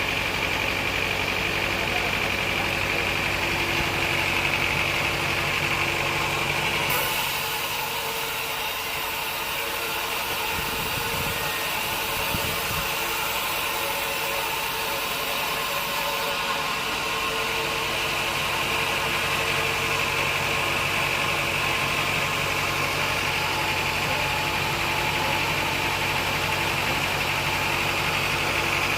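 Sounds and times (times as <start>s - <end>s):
sawmill machinery drone: 0.0s - 28.9s.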